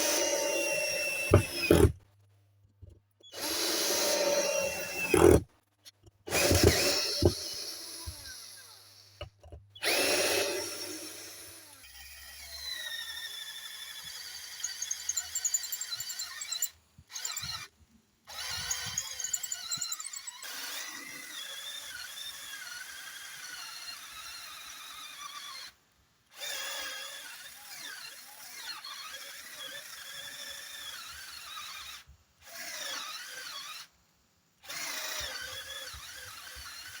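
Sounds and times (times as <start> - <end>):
cordless drill motor whine: 0.0 - 1.9, 3.3 - 5.4, 6.3 - 17.7, 18.3 - 21.8.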